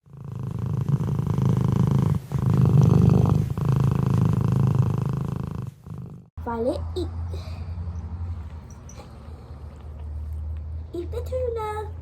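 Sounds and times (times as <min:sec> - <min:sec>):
cat purring loudly: 0:00.0 - 0:06.3.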